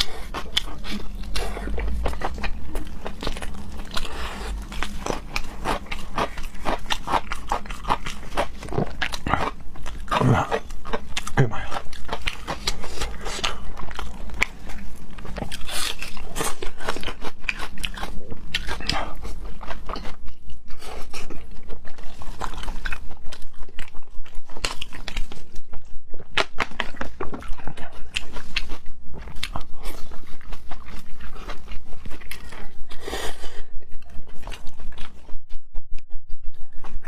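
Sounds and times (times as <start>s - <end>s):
person chewing food: 0.0s - 37.0s.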